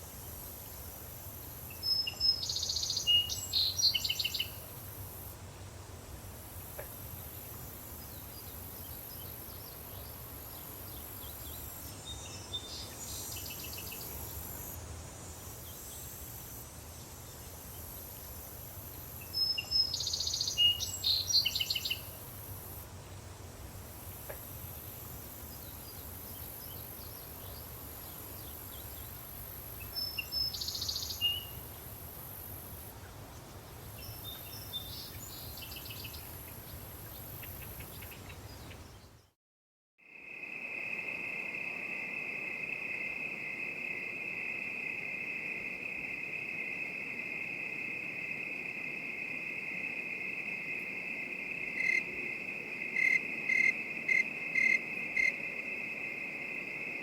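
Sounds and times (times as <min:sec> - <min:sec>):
crickets chirping: 0:00.0 - 0:38.3, 0:40.0 - 0:57.0
high insect drone: 0:40.0 - 0:57.0
bird chirps: 0:52.8 - 0:55.6.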